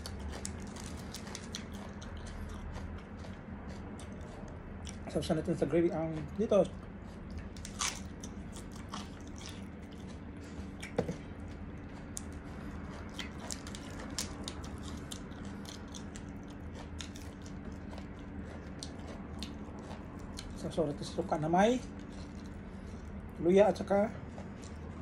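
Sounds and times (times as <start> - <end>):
lettuce leaves crinkling: 0.0 - 1.8
close-up chewing: 0.0 - 25.0
steady low hum: 0.0 - 25.0.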